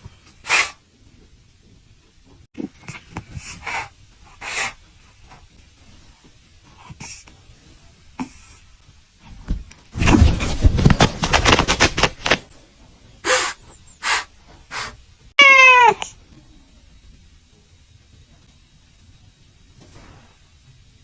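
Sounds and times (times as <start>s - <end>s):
short breathy puffs: 0.0s - 0.8s, 2.6s - 5.4s, 13.2s - 15.1s
rustling and scuffling: 8.8s - 15.0s
kitten meowing: 15.4s - 16.2s.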